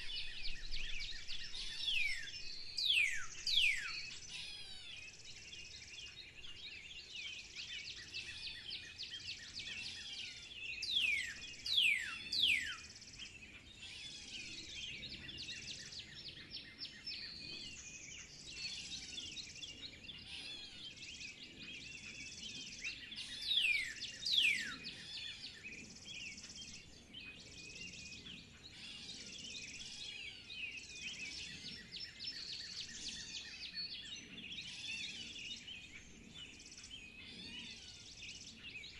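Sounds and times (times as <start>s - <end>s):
birds chirping and singing: 0.0s - 38.9s.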